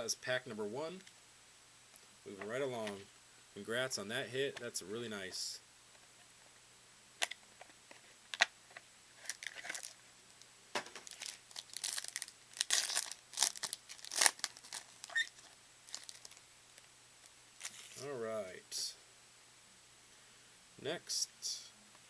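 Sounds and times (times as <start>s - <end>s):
card pack wrapper crinkling: 9.2s - 10.0s, 10.8s - 16.9s, 17.6s - 18.0s.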